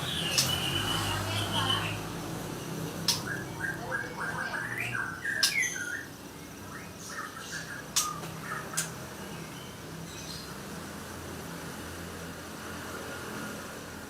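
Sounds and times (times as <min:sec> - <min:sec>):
bird singing whistled notes: 0:00.0 - 0:02.0, 0:03.0 - 0:10.5
sharp clicks: 0:03.0 - 0:03.3.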